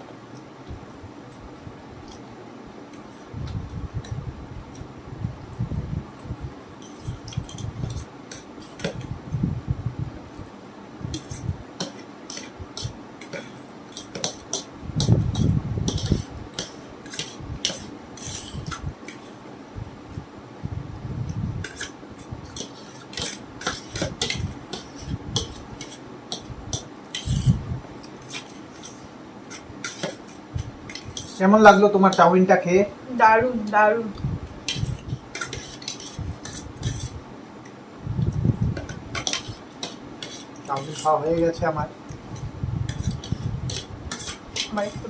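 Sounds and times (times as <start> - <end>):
utensils clicking on plates: 11.2 - 14.7.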